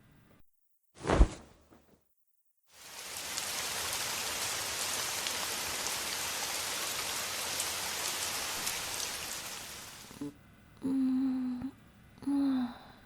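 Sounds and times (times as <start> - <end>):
steady rain falling: 2.7 - 10.2.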